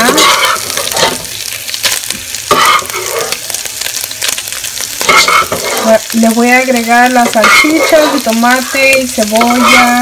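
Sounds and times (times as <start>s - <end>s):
food sizzling in a pan: 0.0s - 10.0s
utensil scraping a pan: 5.0s - 6.0s, 7.2s - 8.4s, 9.3s - 10.0s.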